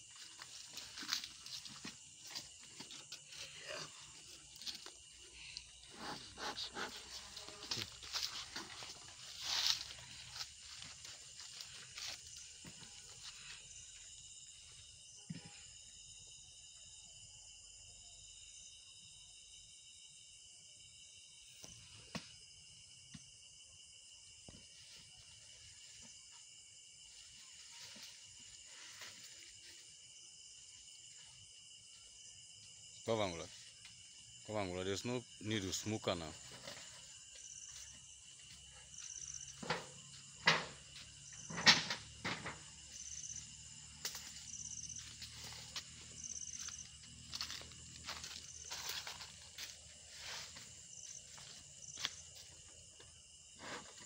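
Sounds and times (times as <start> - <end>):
crickets chirping: 0.0 - 54.0
equipment knocks and scrapes: 39.5 - 42.8.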